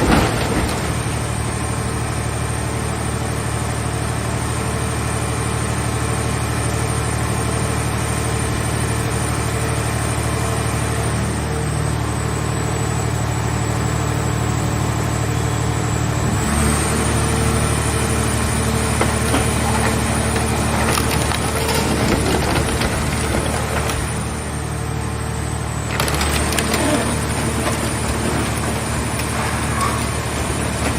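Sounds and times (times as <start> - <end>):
hydraulic baler humming and whining: 0.0 - 30.9
scrap metal crackling and snapping: 18.9 - 24.6, 25.7 - 30.9.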